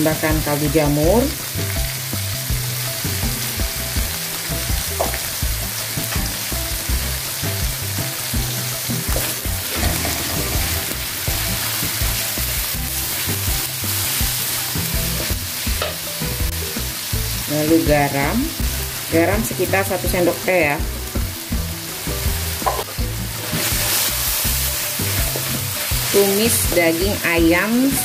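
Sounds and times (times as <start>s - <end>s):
food sizzling in oil in a wok: 0.0s - 28.0s
spatula scraping a wok: 9.1s - 13.3s, 23.3s - 26.9s.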